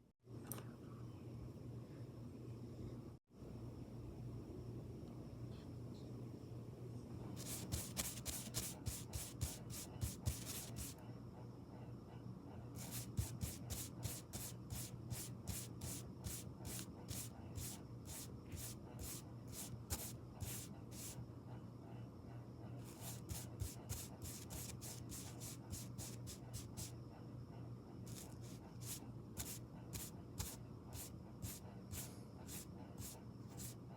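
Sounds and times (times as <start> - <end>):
makeup brush strokes: 7.4 - 11.0, 12.8 - 21.2, 22.8 - 26.9, 28.1 - 33.8.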